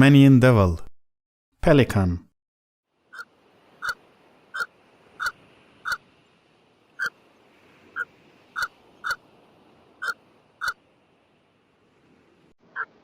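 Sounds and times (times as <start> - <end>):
pelican calling: 3.1 - 6.0, 7.0 - 7.2, 7.8 - 9.2, 10.0 - 10.8.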